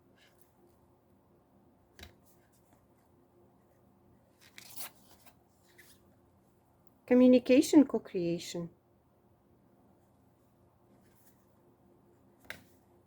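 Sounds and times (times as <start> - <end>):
cards rustling and sliding: 4.3 - 6.0.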